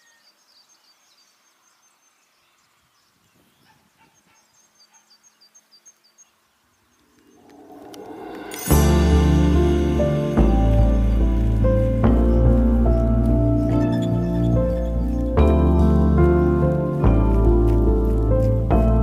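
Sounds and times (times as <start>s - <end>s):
songbird chirping: 0.0s - 19.0s
rising swell of sound: 7.1s - 12.8s.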